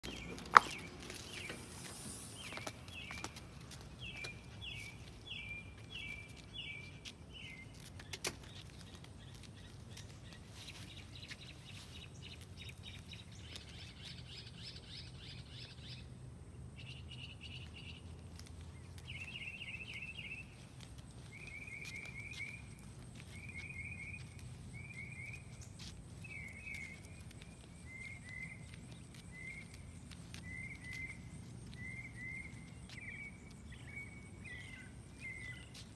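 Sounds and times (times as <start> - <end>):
low background noise: 0.0 - 35.9
songbirds chirping: 0.0 - 35.9.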